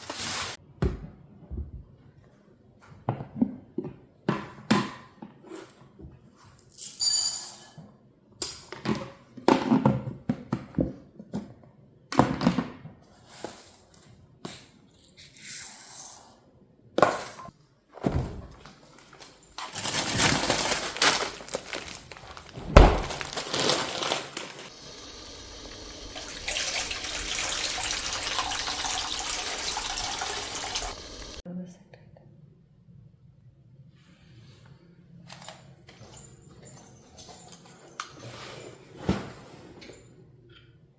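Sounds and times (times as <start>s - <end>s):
loud thump: 22.6s - 23.4s
household items knocking: 22.6s - 24.0s
tap water running: 22.6s - 31.4s.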